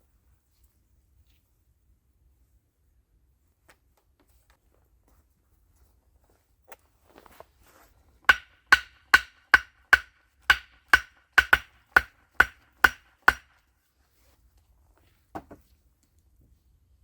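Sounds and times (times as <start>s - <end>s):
hand tool striking wood: 8.3s - 13.6s.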